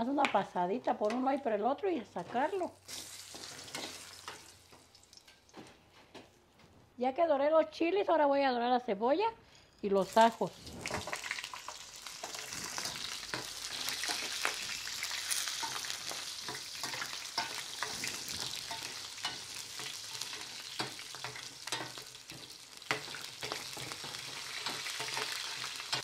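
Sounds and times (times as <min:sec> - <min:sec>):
onion and garlic sizzling: 0:02.2 - 0:05.6, 0:09.8 - 0:26.0
spoon scraping against pan: 0:10.9 - 0:26.0.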